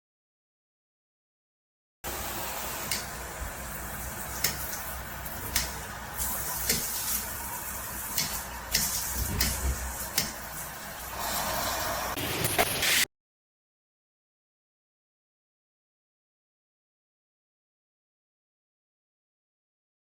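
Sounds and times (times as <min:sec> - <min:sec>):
shower water spraying: 0:02.1 - 0:13.1.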